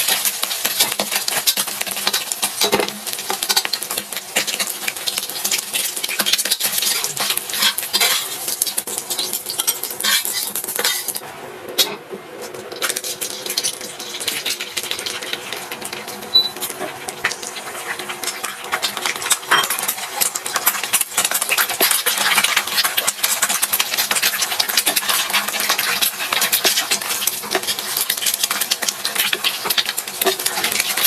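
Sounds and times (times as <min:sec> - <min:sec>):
metal utensil stirring in a pan: 0:00.0 - 0:11.2
food sizzling: 0:00.0 - 0:31.0.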